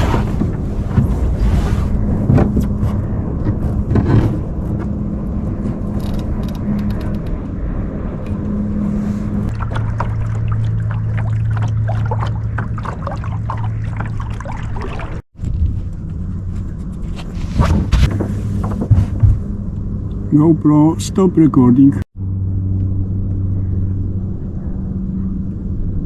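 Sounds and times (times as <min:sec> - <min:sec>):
low motor hum: 0:00.0 - 0:26.0
small water splashes: 0:09.5 - 0:15.2.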